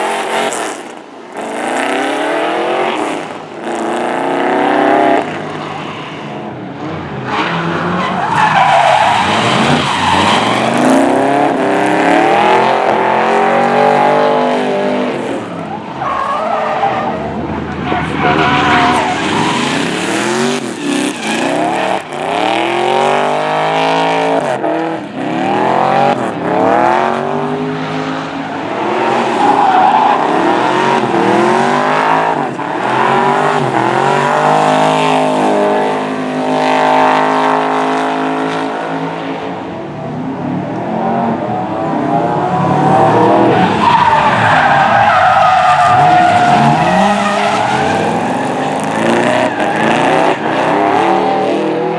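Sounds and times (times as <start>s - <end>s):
tyres skidding and squealing: 0.0s - 51.9s
car engine revving hard: 18.0s - 28.2s, 30.2s - 38.9s, 41.0s - 51.9s.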